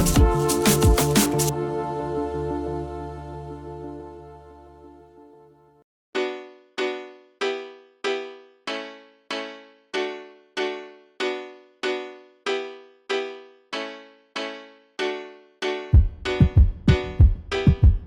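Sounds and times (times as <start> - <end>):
music with heavy bass beat: 0.0 - 1.5.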